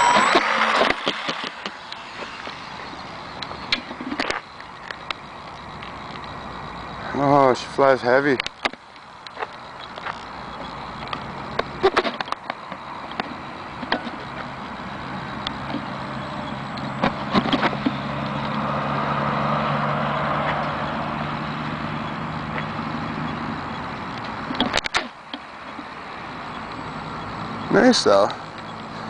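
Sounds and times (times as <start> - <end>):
model plane propellers whirring: 0.0 - 6.3
sharp clicks: 0.0 - 6.4, 8.3 - 14.5, 22.0 - 27.7.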